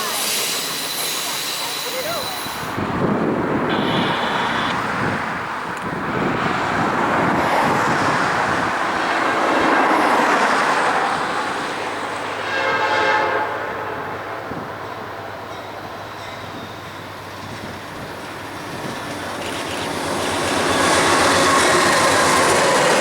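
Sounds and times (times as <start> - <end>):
train horn blast: 3.7 - 4.9, 12.4 - 14.1
train wheels clattering on rail: 14.5 - 23.0.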